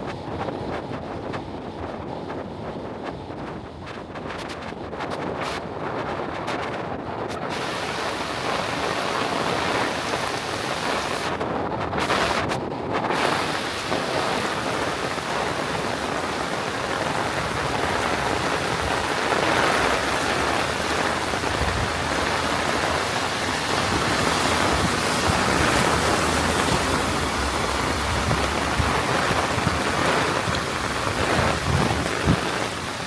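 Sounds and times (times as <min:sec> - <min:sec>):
heavy rain pouring: 0:07.3 - 0:33.0.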